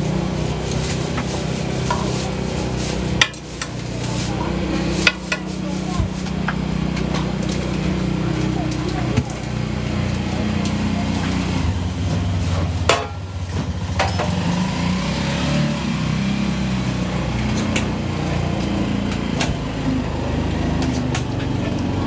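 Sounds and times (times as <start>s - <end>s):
faint voices: 0.0s - 14.9s
low mechanical hum: 0.0s - 22.0s.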